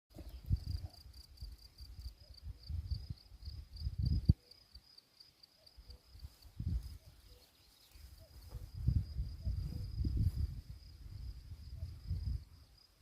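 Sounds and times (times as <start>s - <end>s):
cricket chirping trill: 0.2s - 13.0s
wind buffeting microphone: 2.5s - 4.4s, 8.2s - 12.6s.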